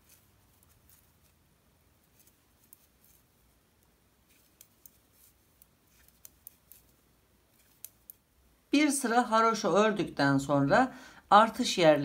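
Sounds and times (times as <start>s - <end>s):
knitting needles clicking: 2.0s - 8.3s.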